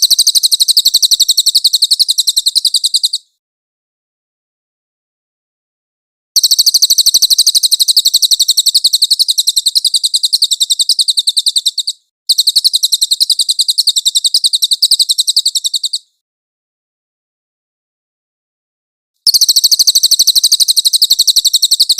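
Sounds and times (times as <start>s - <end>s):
bird chirping trills: 0.0s - 3.3s, 6.4s - 16.1s, 19.3s - 21.9s.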